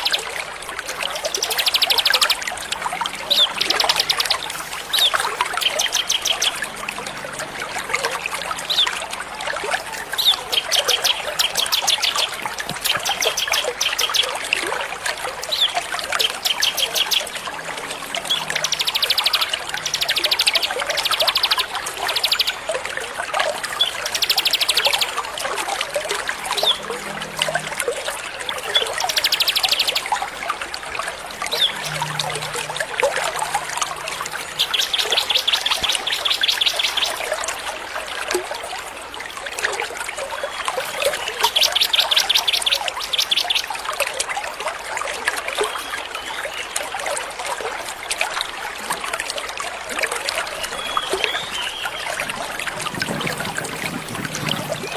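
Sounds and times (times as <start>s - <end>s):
trickling water: 0.0s - 54.9s.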